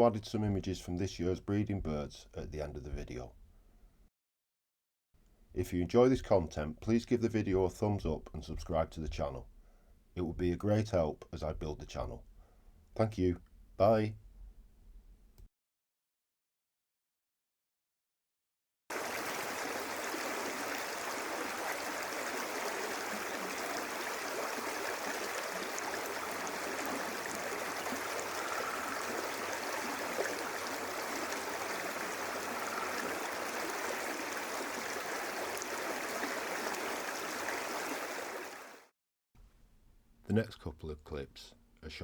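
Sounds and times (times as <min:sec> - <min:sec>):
rushing river water: 0:18.9 - 0:38.9.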